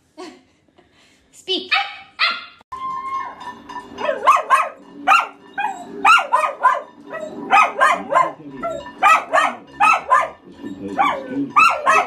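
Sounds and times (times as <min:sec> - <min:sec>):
dog barking high: 0:01.7 - 0:02.6, 0:04.0 - 0:10.4, 0:11.0 - 0:12.0
puppy barking: 0:01.7 - 0:02.6, 0:04.0 - 0:12.0.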